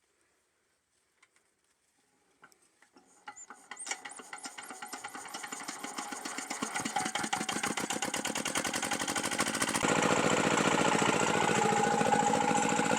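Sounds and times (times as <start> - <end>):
diesel engine hand-cranked and starting: 2.9 - 12.9.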